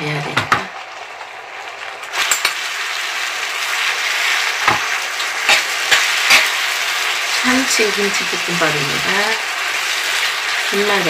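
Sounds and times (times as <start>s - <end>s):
rice sizzling in frying pan: 0.1s - 11.0s
utensils scraping pan: 5.5s - 6.6s.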